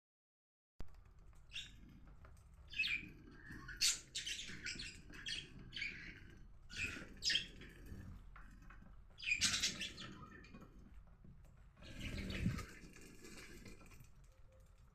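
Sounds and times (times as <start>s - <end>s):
budgerigars chirping: 2.7s - 8.0s, 9.2s - 10.6s.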